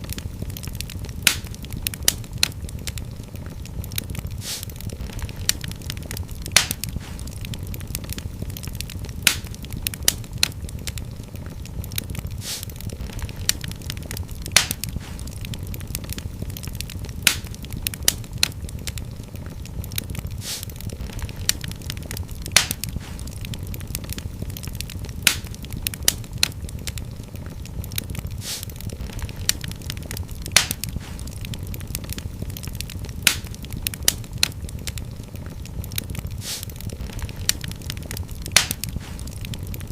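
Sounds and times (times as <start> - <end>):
fire crackling: 0.0 - 39.9
fire flames rumbling: 0.0 - 39.9
sharp pops: 0.1 - 3.0, 3.6 - 8.6, 9.2 - 10.6, 12.4 - 16.6, 17.2 - 18.6, 20.4 - 27.0, 28.4 - 35.0, 36.0 - 39.6
brief hiss: 4.4 - 4.7, 12.4 - 12.7, 20.4 - 20.7, 28.4 - 28.7, 36.4 - 36.7.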